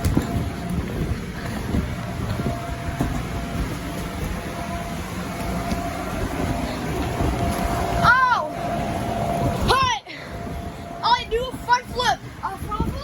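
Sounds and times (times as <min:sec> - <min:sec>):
air blower rumbling: 0:00.0 - 0:13.0
faint blower whine: 0:00.0 - 0:13.0.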